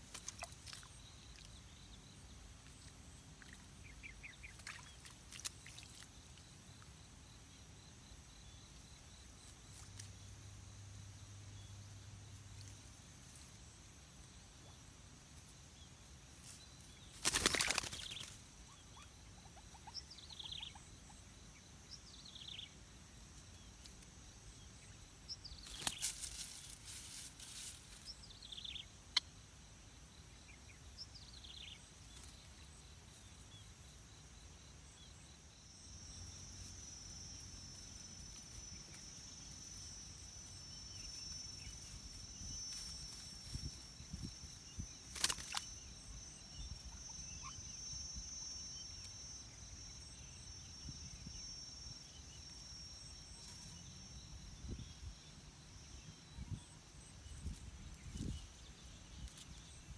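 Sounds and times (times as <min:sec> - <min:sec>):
bird rustling leaves: 0:16.3 - 0:18.5, 0:25.6 - 0:28.1, 0:37.7 - 0:45.8
high-pitched insect drone: 0:35.3 - 0:56.6.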